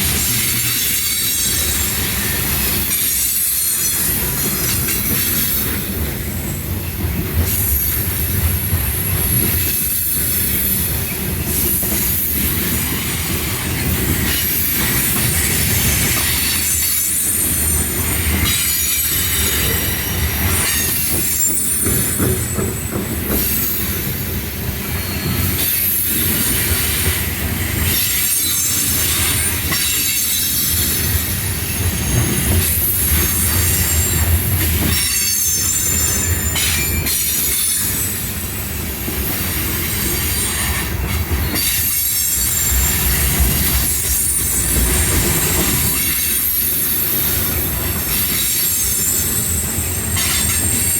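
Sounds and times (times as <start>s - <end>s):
freight train rumbling: 0.0s - 50.9s
wheel squeal: 0.2s - 5.7s, 15.4s - 23.8s.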